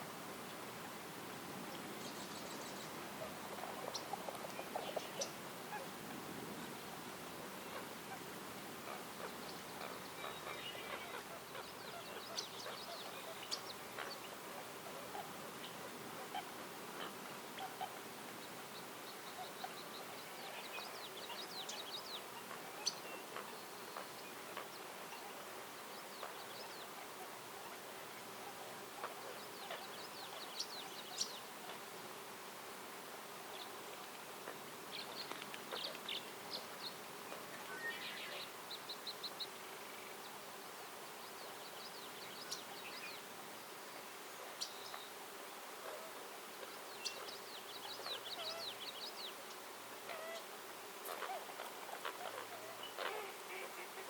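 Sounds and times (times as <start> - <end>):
songbirds singing trilled phrases: 46.7 - 49.6.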